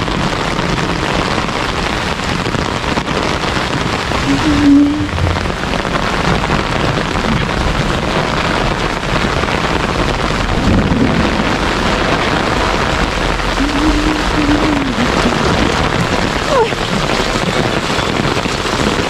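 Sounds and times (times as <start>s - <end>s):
heavy rain on an umbrella: 0.0s - 19.0s
low rumble: 4.2s - 8.3s, 10.2s - 16.4s.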